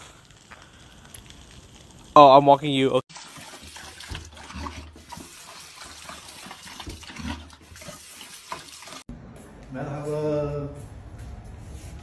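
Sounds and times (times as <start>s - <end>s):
running water: 3.0s - 9.1s
small splashes and knocks: 3.1s - 9.1s.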